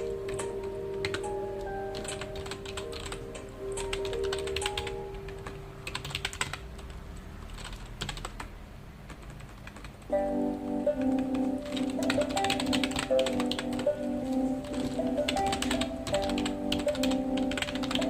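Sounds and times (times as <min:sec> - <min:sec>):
soft music with held notes: 0:00.0 - 0:06.0, 0:10.1 - 0:18.0
computer keyboard typing: 0:00.0 - 0:18.0.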